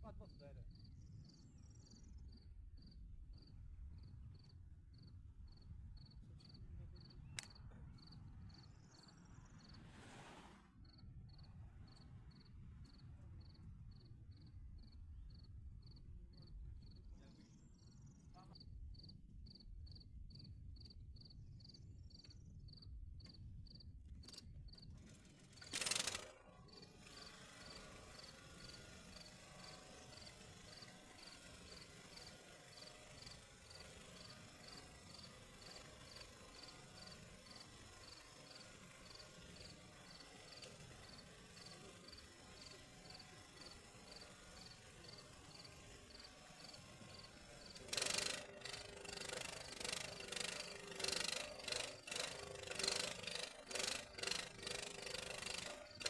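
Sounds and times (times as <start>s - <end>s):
insect chirping: 39.0s - 53.0s.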